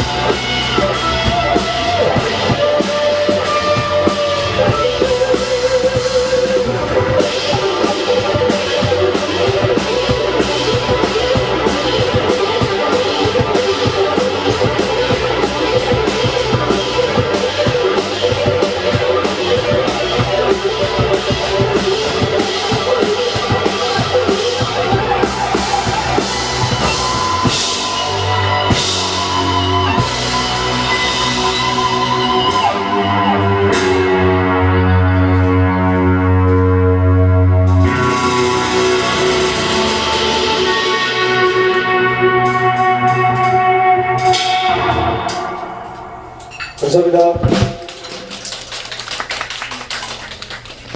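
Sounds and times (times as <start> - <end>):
fast drum beat with cymbals: 0.0 - 34.2, 37.7 - 43.5
electric guitar: 0.0 - 46.6.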